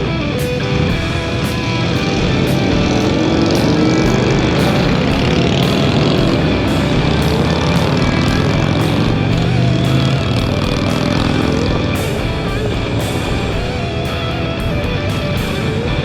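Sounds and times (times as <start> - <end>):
electric guitar rock music: 0.0 - 16.0
motorcycle engine running: 0.0 - 16.0.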